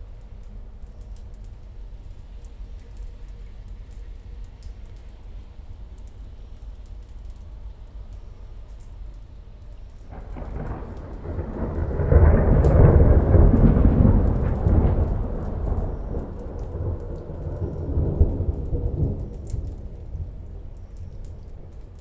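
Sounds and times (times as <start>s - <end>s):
rain pattering: 0.0s - 22.0s
thunder rolling: 10.1s - 22.0s.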